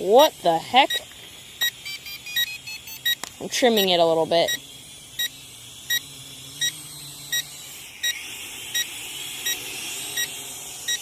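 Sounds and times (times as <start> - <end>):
drone motors whine: 0.0 - 11.0
remote controller warning beeps: 0.8 - 4.6, 5.2 - 9.6.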